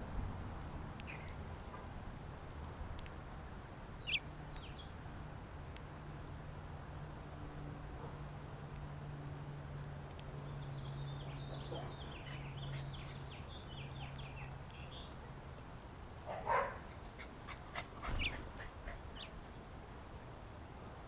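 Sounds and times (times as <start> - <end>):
small birds chirping: 1.0 - 1.7, 3.7 - 5.0, 10.2 - 15.6, 16.8 - 19.5.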